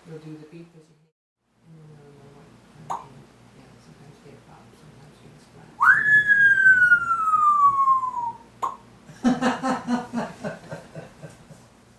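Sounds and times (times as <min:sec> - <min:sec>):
parrot whistling: 0:05.8 - 0:08.5.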